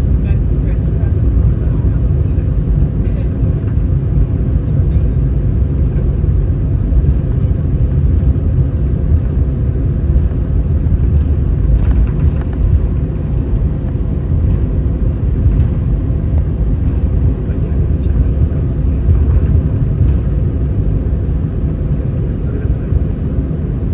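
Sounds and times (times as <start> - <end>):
airplane cabin rumble: 0.0 - 23.9
faint clicks and rattles: 11.2 - 13.0.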